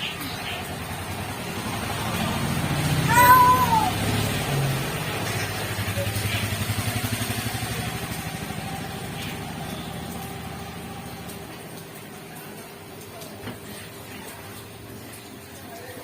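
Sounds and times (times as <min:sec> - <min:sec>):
vehicle engine pulsing: 0:00.0 - 0:11.4.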